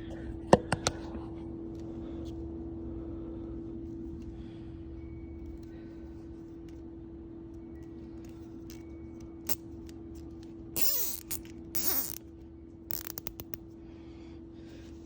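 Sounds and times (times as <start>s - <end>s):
faint steady hum: 0.0s - 15.0s
plastic zip ties rasping: 10.8s - 12.2s, 12.9s - 13.6s.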